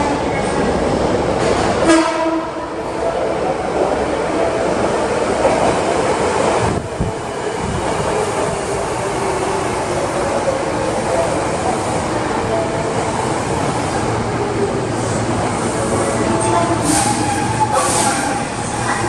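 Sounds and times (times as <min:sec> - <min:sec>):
train rumble and wheel noise: 0:00.0 - 0:19.0
train horn blast: 0:01.8 - 0:02.7.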